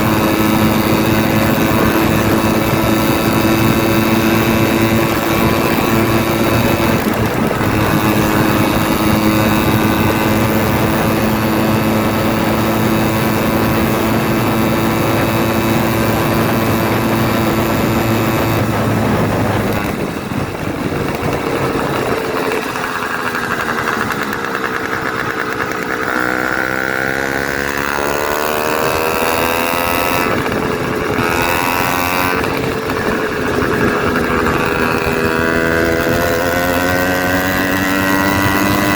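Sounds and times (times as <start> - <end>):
two-stroke engine revving: 0.0 - 38.9.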